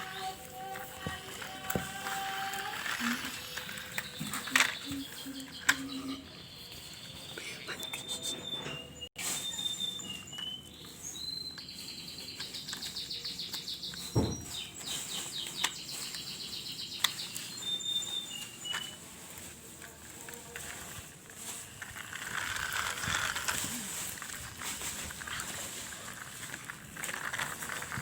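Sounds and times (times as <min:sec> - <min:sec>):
small bird chirping and trilling: 0:02.3 - 0:19.0
thump: 0:14.2 - 0:14.6.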